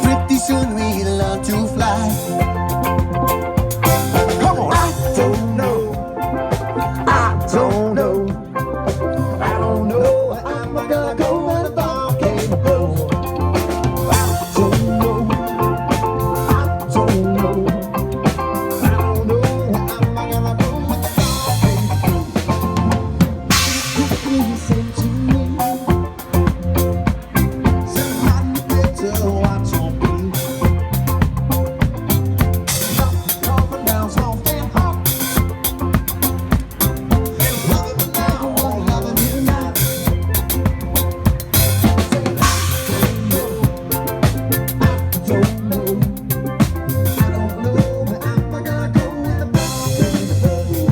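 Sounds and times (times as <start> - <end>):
band playing instrumental: 0.0 - 50.9
drum kit beat: 0.0 - 50.9.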